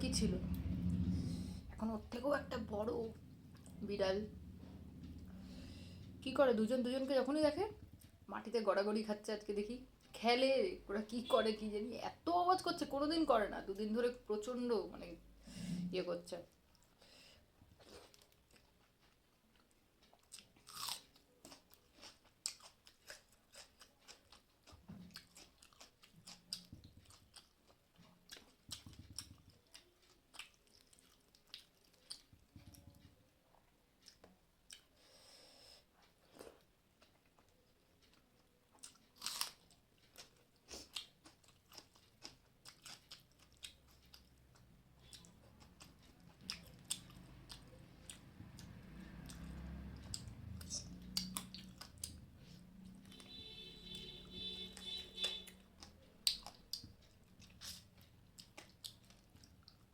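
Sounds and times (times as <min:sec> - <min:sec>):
person chewing and crunching: 0:17.7 - 0:35.2, 0:36.0 - 0:59.9.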